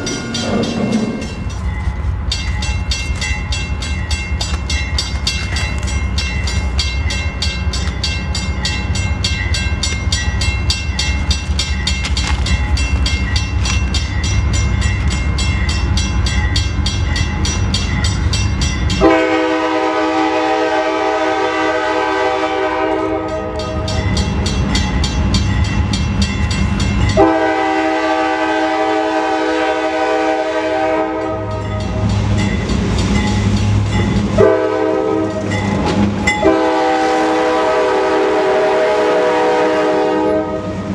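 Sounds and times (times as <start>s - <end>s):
train wheels clicking: 0.0s - 20.3s, 29.7s - 37.7s
diesel locomotive rumbling past: 0.0s - 40.9s
train air horn blasts: 19.0s - 23.8s, 27.2s - 31.7s, 34.4s - 35.5s, 36.4s - 40.9s.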